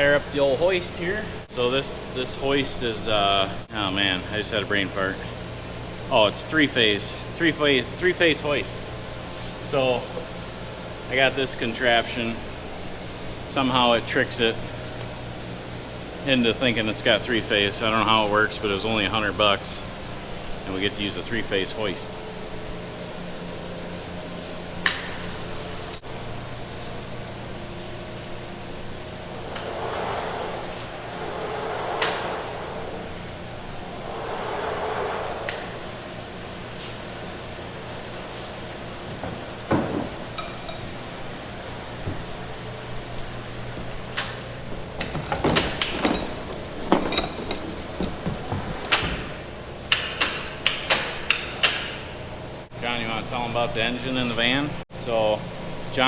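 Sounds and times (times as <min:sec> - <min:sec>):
electric hoist humming: 0:00.0 - 0:56.0
metal clanks and knocks: 0:39.1 - 0:40.9, 0:44.2 - 0:52.0.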